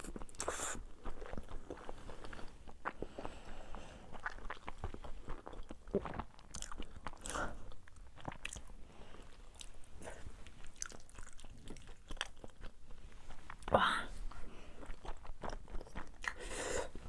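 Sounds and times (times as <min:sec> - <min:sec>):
person chewing and biting: 0:04.1 - 0:08.7, 0:10.7 - 0:12.7, 0:14.8 - 0:16.6.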